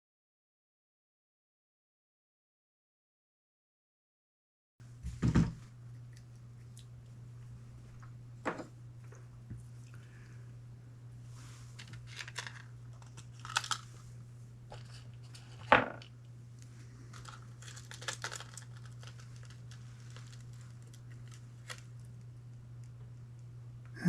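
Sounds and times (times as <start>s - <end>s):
steady low hum: 4.8s - 24.0s.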